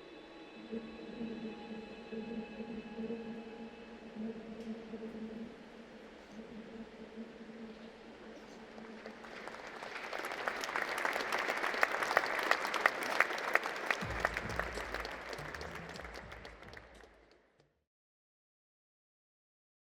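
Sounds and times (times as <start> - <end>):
audience clapping: 8.6 - 17.5.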